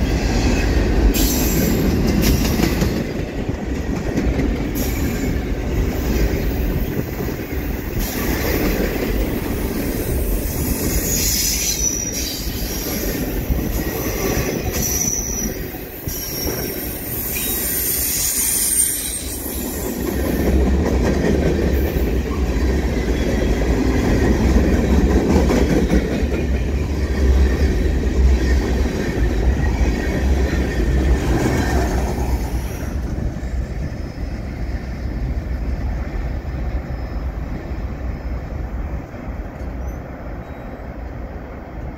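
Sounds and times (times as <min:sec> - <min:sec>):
train wheels rumbling on rails: 0:00.0 - 0:41.9
high wheel squeal: 0:10.1 - 0:19.9.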